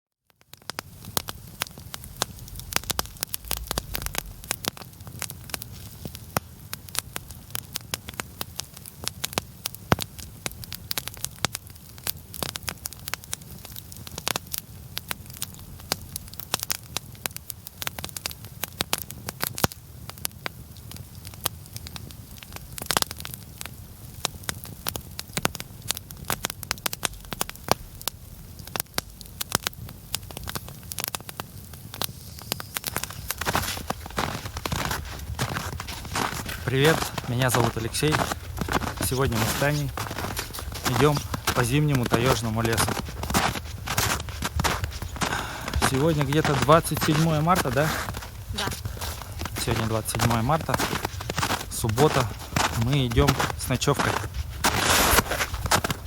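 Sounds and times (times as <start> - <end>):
campfire crackling and popping: 0.2 - 56.0
low steady rumble: 2.1 - 5.6.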